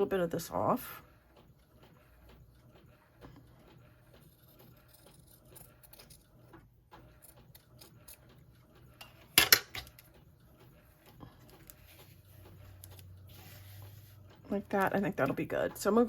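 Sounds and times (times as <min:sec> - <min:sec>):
scissors snipping fabric: 0:04.2 - 0:06.2.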